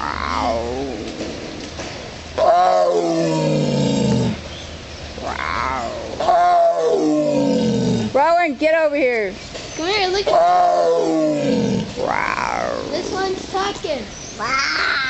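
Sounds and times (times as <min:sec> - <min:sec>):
tiger calling: 0:00.0 - 0:01.3, 0:05.2 - 0:08.2, 0:10.3 - 0:13.0.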